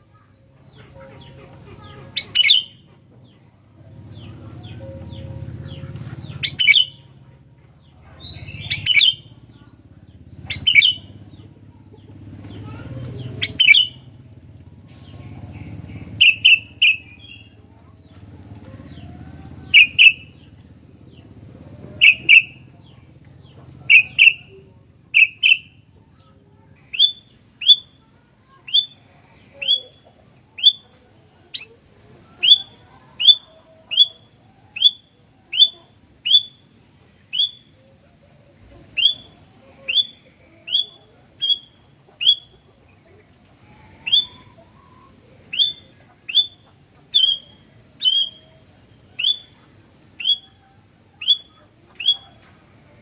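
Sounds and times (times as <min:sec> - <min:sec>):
low steady hum: 0:00.0 - 0:53.0
bird short sharp calls: 0:00.7 - 0:02.8, 0:04.1 - 0:07.1, 0:08.2 - 0:09.3, 0:10.5 - 0:11.1, 0:12.4 - 0:14.0, 0:14.9 - 0:17.5, 0:19.7 - 0:20.3, 0:21.8 - 0:22.7, 0:23.8 - 0:24.6, 0:25.2 - 0:25.7, 0:26.8 - 0:28.0, 0:28.6 - 0:30.0, 0:31.5 - 0:36.6, 0:37.3 - 0:37.8, 0:38.8 - 0:42.6, 0:43.6 - 0:50.6, 0:51.2 - 0:52.6.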